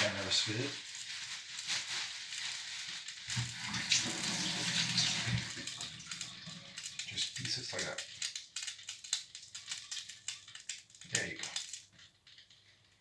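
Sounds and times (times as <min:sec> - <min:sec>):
pot of water boiling: 0:02.4 - 0:08.6.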